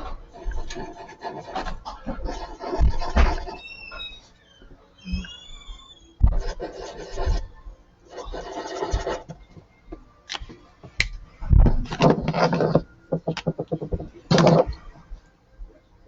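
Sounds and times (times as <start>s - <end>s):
marker rubbing on paper: 0.0s - 4.2s, 6.2s - 7.5s, 8.1s - 9.4s.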